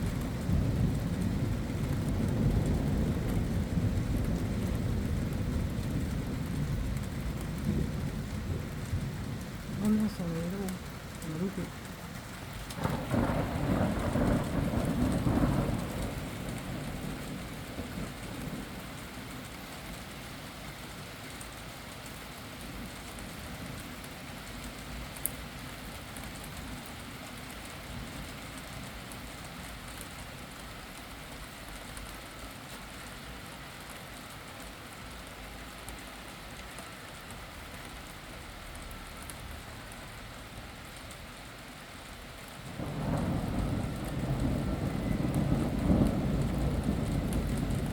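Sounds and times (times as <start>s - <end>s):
thunder rumbling: 0.0s - 19.5s, 42.5s - 47.9s
steady rain falling: 0.0s - 47.9s.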